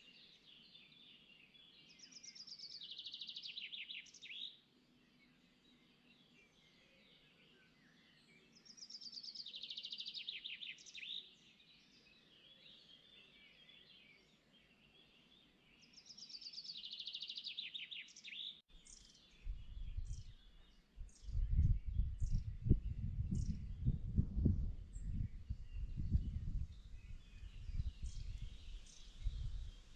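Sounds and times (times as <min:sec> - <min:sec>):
birds chirping: 0:05.2 - 0:29.9.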